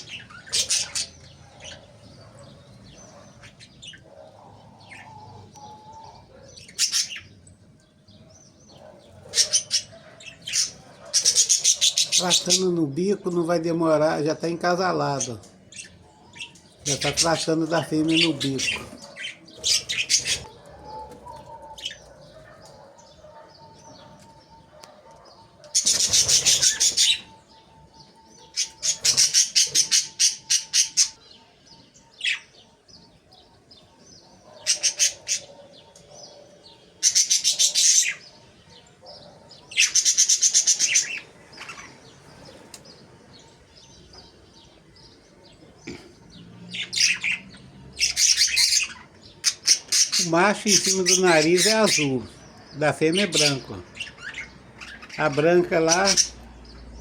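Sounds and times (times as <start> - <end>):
budgerigars chattering: 0.0 - 7.4, 8.0 - 57.0.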